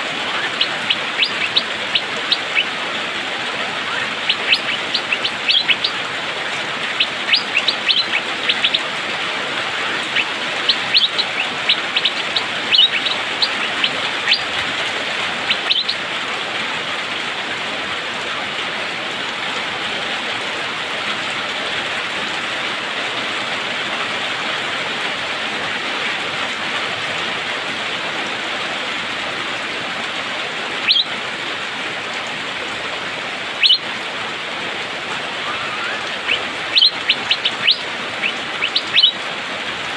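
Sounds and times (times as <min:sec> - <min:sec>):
bird chirping: 0:00.1 - 0:03.0, 0:03.6 - 0:16.0, 0:30.8 - 0:31.1, 0:33.6 - 0:33.9, 0:35.4 - 0:39.2.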